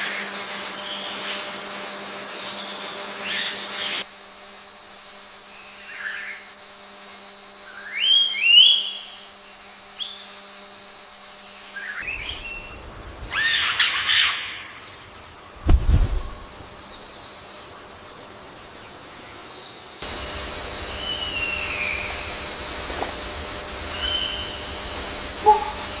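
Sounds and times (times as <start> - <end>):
wild birds calling: 7.2 - 15.6, 18.6 - 26.0
low thud: 15.6 - 16.5.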